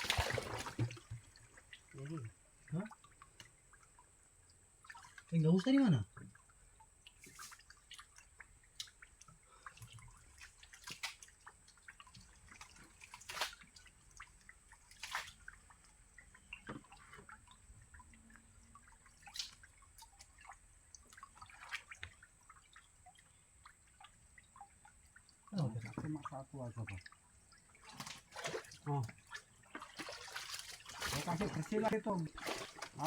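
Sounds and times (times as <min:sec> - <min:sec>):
splashes in muddy water: 0:00.0 - 0:02.9, 0:10.2 - 0:15.6, 0:19.2 - 0:22.9, 0:27.8 - 0:33.0
water dripping: 0:00.0 - 0:33.0.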